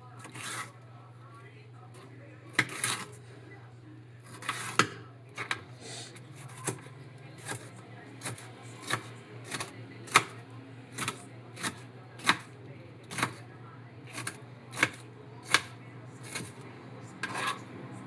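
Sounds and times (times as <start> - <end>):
knife chopping on cutting board: 2.5 - 3.1, 4.3 - 5.6, 7.4 - 12.5, 13.1 - 13.4, 14.1 - 16.6, 17.2 - 17.6.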